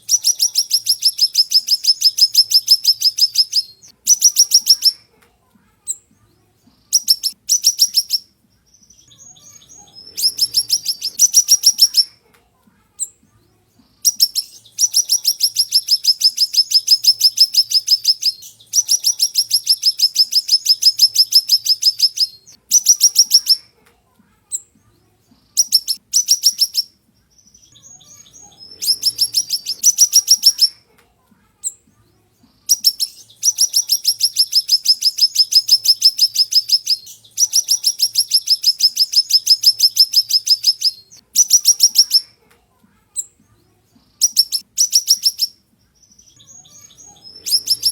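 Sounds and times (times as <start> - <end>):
bird trilling: 0.0 - 5.0, 7.0 - 8.3, 8.9 - 12.1, 14.0 - 23.6, 25.6 - 26.9, 27.5 - 30.8, 32.7 - 42.3, 44.2 - 47.9.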